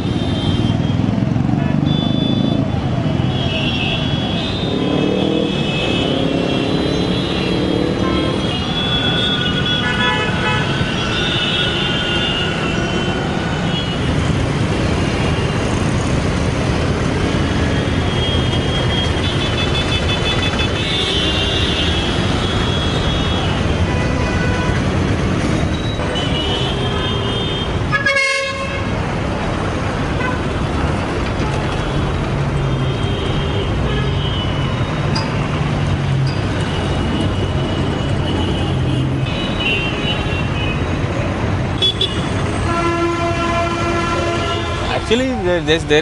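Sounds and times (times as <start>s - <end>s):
road traffic rumble: 0.0s - 46.0s
vehicle horns honking: 3.3s - 14.3s, 17.6s - 25.0s, 25.8s - 29.0s, 36.7s - 40.9s, 41.8s - 45.2s.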